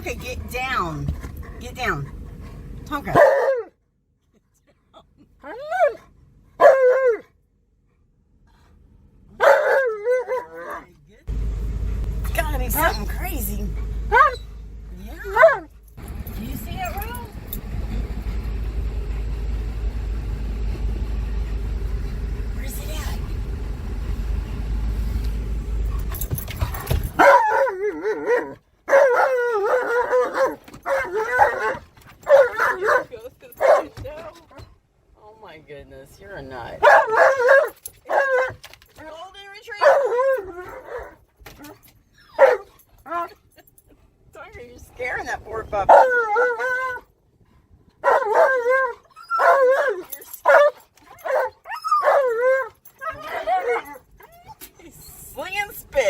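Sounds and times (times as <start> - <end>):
car cabin rumble: 11.3 - 27.6
dog howling: 27.2 - 33.1, 45.9 - 47.0, 48.0 - 54.6.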